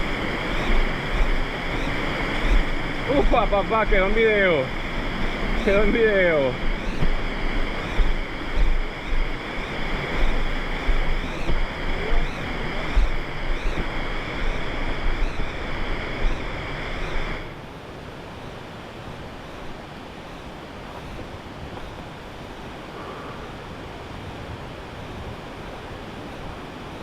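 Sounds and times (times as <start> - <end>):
waterfall rushing: 0.0 - 17.5
wind buffeting microphone: 0.0 - 27.0.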